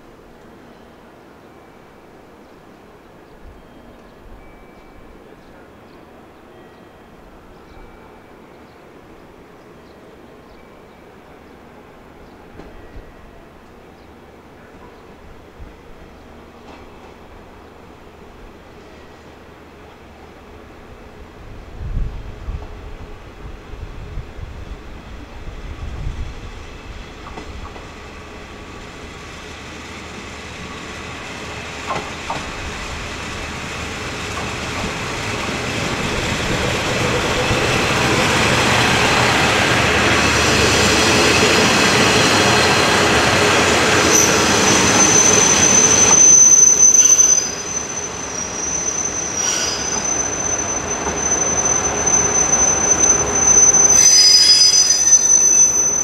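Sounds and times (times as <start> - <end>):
diesel railcar engine and wheels: 0.0 - 56.0
brakes squealing: 36.6 - 56.0.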